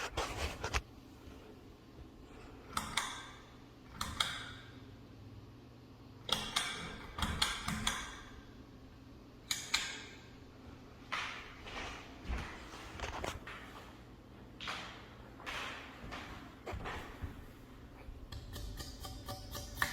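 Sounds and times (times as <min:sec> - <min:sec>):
ceiling fan humming: 0:00.0 - 0:19.9.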